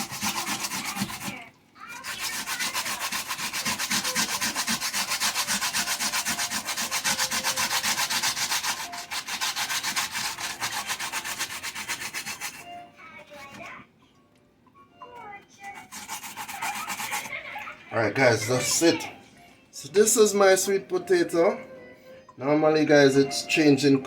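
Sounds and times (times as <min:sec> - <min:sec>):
sweet potato grated on grater: 0:00.0 - 0:12.8, 0:15.6 - 0:17.5, 0:18.1 - 0:19.0.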